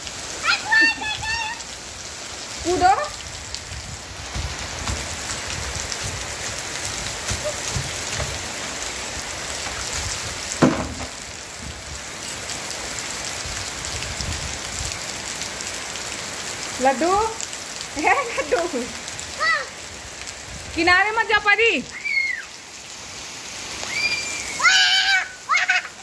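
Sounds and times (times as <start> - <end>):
rain on concrete roof: 0.0 - 26.0.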